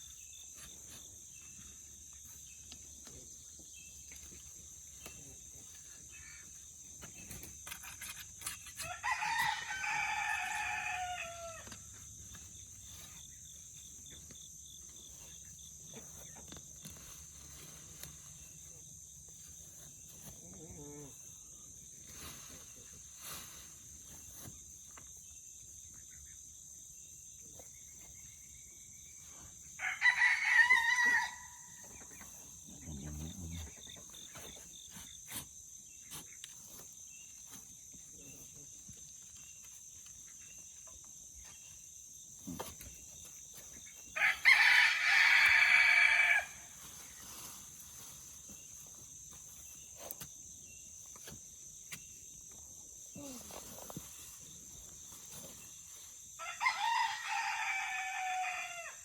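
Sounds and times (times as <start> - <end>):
rooster crowing: 8.8 - 11.8, 29.8 - 31.8, 44.2 - 46.7, 56.4 - 59.0.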